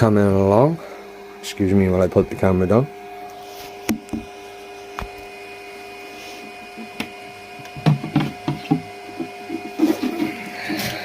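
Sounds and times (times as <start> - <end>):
steady hum: 0.0 - 11.0
knocks and bumps of handling: 7.7 - 10.4.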